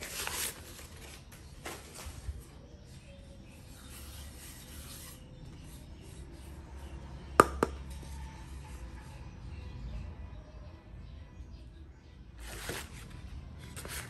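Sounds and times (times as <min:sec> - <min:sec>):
wood rubbing and scraping: 0:02.0 - 0:09.0
sharp wooden knocks: 0:07.4 - 0:07.8.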